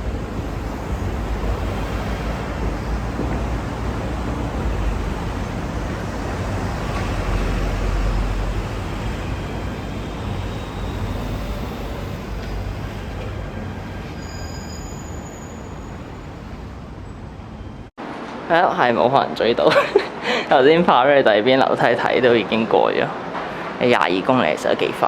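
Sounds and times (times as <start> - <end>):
metro train rumbling past: 0.0 - 17.9.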